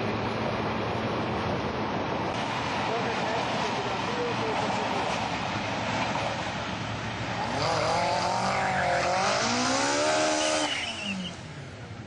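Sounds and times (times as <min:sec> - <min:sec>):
car engine revving: 0:07.2 - 0:11.4
tyre squeal: 0:07.7 - 0:11.4.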